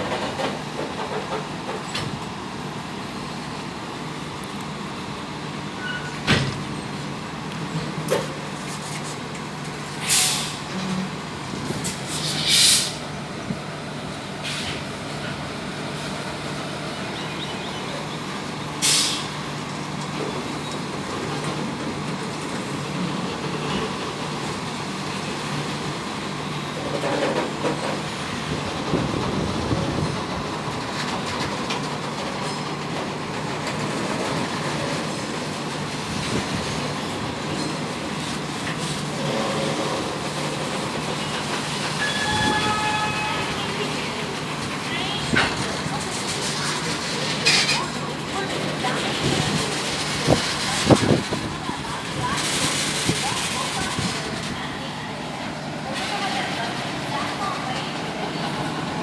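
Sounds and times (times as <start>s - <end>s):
train hum and rumble: 0.0s - 59.0s
short hisses of air: 10.0s - 10.6s, 12.0s - 13.0s, 18.8s - 19.3s.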